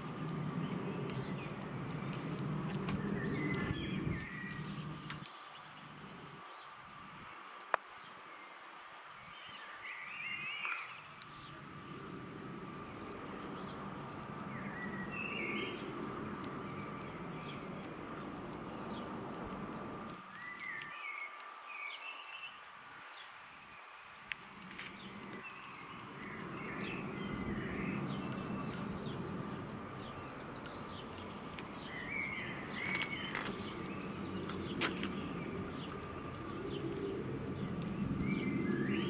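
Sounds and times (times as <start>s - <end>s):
low rushing noise: 0.0s - 7.4s, 10.3s - 20.6s, 24.3s - 39.0s
songbirds chirping: 0.0s - 39.0s.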